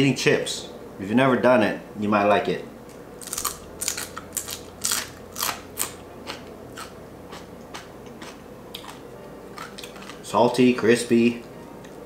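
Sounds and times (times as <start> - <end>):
crunchy chewing: 3.2 - 10.6.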